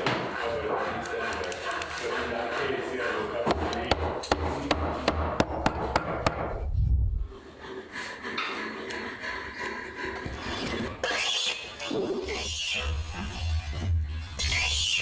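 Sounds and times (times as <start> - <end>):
tool knocking on wood: 3.5 - 6.7.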